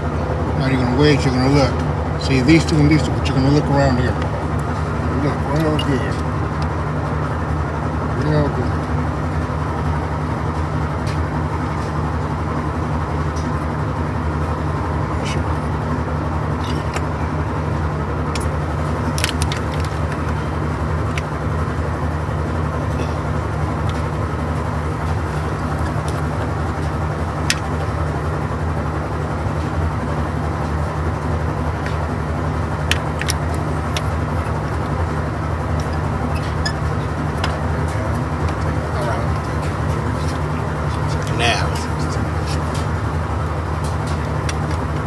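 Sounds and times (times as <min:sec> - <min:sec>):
low background hum: 0:00.0 - 0:45.0.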